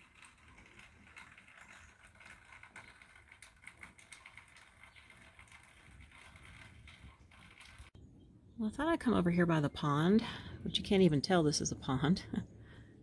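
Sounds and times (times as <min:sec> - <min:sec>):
faint clicks and ticks: 0:00.0 - 0:08.0.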